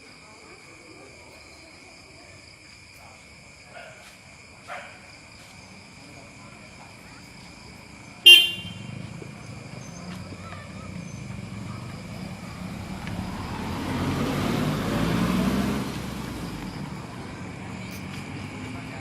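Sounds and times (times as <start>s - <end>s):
vehicle engine running: 6.6s - 19.0s
vehicle horn toot: 8.2s - 9.0s.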